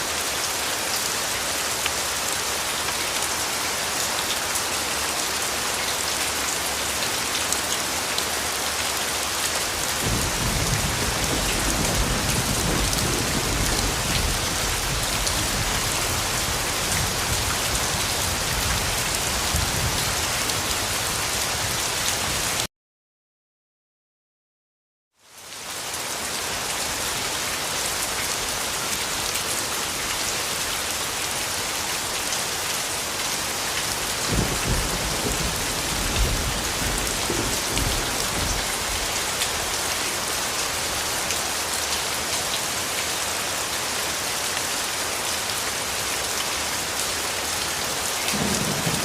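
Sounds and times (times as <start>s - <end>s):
heavy rain falling: 0.0s - 22.7s, 25.2s - 49.0s
low rumble of thunder: 10.0s - 20.2s, 34.2s - 39.0s, 48.3s - 49.0s.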